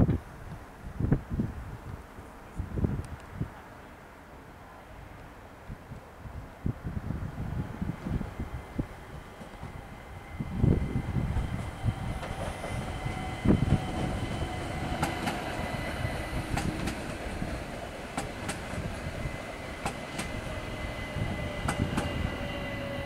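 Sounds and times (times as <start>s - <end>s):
train rumble: 4.9s - 23.0s
wheels clicking over rail joints: 11.4s - 20.5s, 21.4s - 22.9s.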